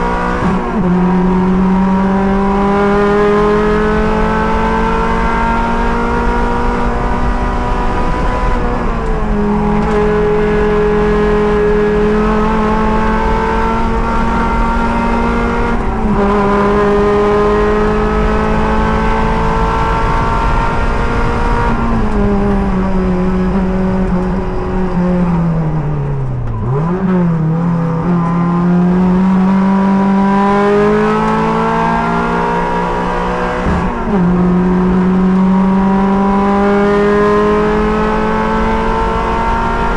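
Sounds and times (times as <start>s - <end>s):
wind noise: 0.0s - 28.2s
road noise: 0.0s - 39.9s
sports car engine racing: 0.0s - 39.9s.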